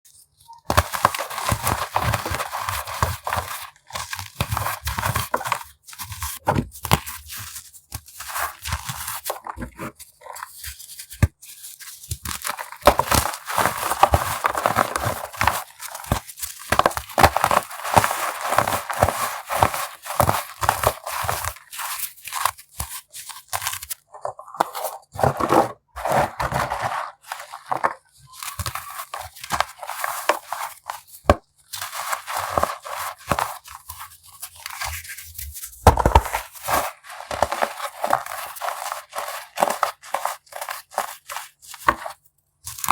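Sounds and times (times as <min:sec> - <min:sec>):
baking soda crunching: 0:06.8 - 0:42.9.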